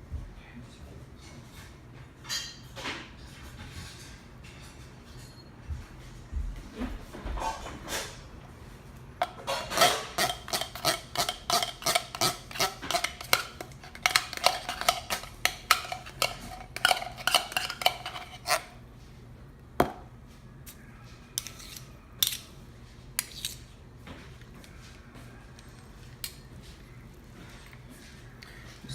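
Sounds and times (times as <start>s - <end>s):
metal spoon clinking and scraping: 9.2s - 18.8s, 21.4s - 22.5s, 23.2s - 23.6s.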